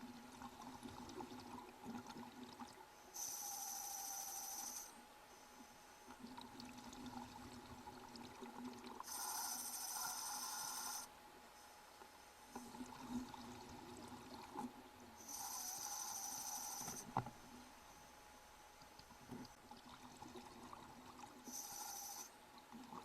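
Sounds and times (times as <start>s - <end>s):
water bubbling and trickling: 0.0s - 2.9s, 18.8s - 21.4s.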